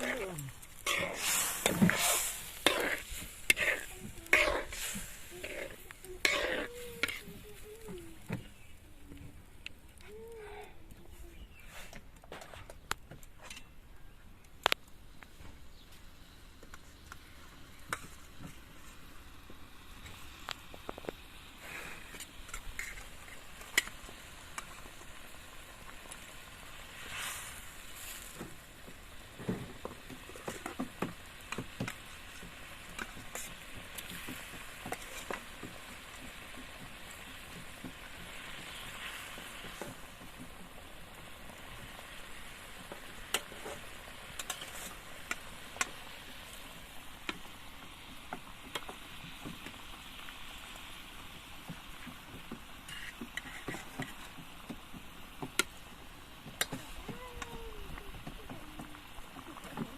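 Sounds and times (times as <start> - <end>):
utensil scraping a pan: 0.0 - 7.4, 43.3 - 45.9, 52.8 - 54.4
food sizzling in a pan: 0.0 - 8.8, 17.4 - 59.9.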